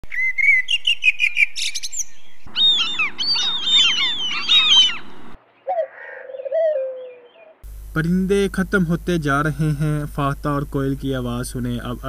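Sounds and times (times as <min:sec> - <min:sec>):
chorus of birds chirping: 0:00.1 - 0:07.6.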